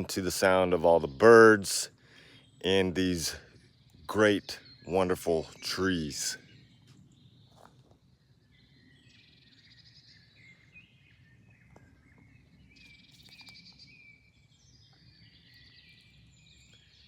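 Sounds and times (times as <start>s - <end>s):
fast trilling birdsong: 0.0s - 7.6s
faint songbirds singing: 0.0s - 17.0s.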